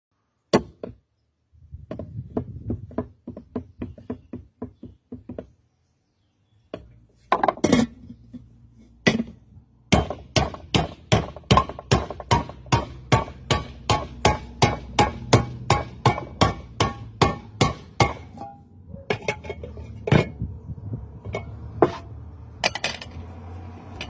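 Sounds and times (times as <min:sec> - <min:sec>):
hammer striking metal: 0:09.9 - 0:18.6.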